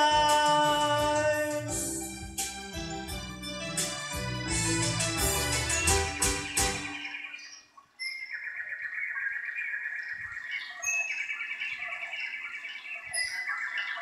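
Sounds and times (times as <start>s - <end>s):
birds trilling chirps: 5.2s - 14.0s
high sharp bird calls: 5.2s - 14.0s.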